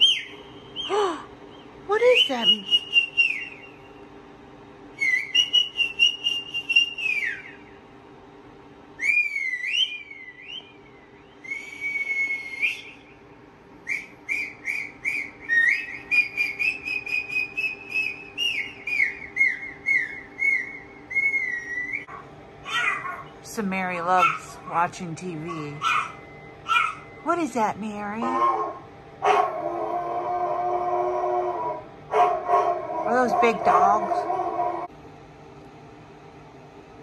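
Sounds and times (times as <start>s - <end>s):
high-pitched whistly squeaks: 9.0s - 10.8s, 11.4s - 13.0s, 13.9s - 22.1s.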